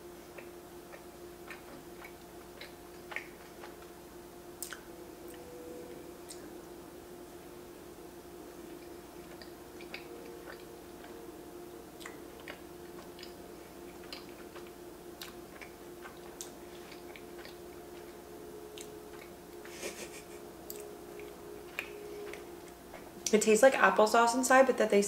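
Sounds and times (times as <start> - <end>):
steady low hum: 0.0 - 25.0
chewing with wet mouth clicks: 0.3 - 4.0, 4.6 - 5.5, 8.7 - 11.2, 12.0 - 19.8, 20.6 - 23.1.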